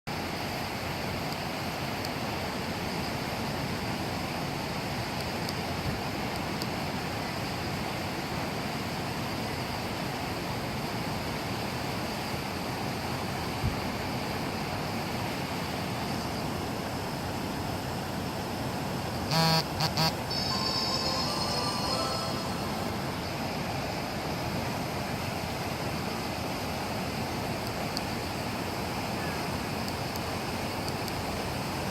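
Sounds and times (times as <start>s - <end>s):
wind: 0.0s - 31.9s
heavy rain: 16.6s - 31.9s
vehicle horn blasts: 19.3s - 20.9s.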